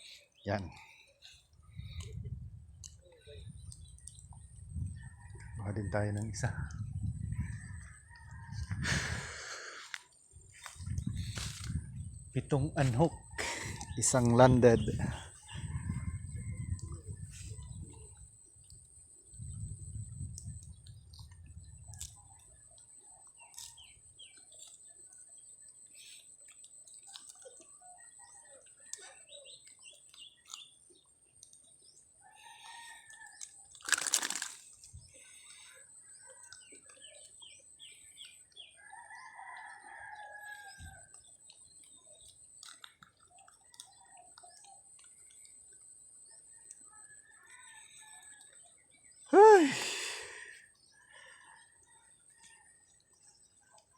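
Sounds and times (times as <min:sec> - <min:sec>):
small birds chirping: 0:00.0 - 0:53.9
roosters crowing: 0:32.2 - 0:34.4, 0:38.6 - 0:41.2.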